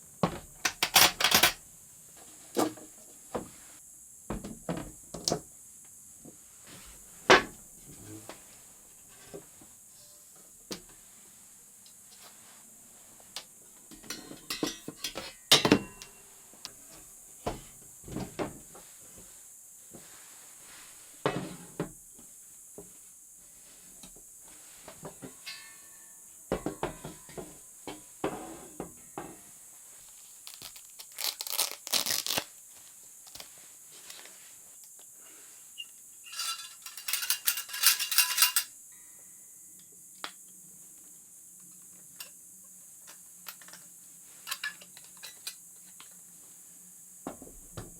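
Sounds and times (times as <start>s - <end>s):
steady high hiss: 4.9s - 47.9s
small hard objects clinking: 30.5s - 32.4s, 36.2s - 38.7s, 44.5s - 45.6s.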